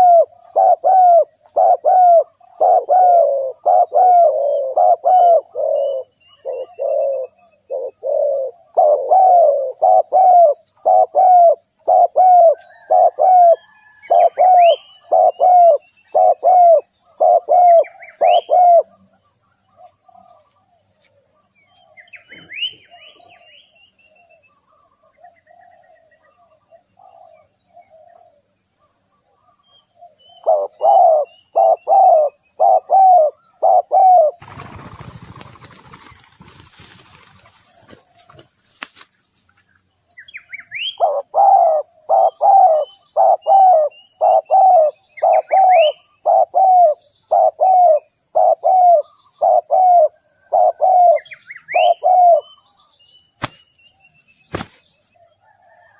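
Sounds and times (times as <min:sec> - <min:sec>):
dove cooing: 0:00.0 - 0:19.0, 0:30.4 - 0:36.5, 0:40.8 - 0:52.5
small birds chirping: 0:00.0 - 0:55.9.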